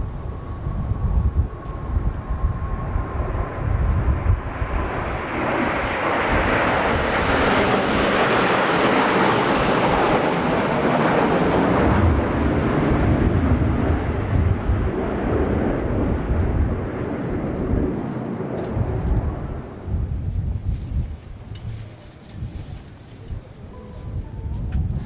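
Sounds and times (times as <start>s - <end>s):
jet aircraft passing: 0.0s - 24.2s
wind buffeting microphone: 0.0s - 25.0s.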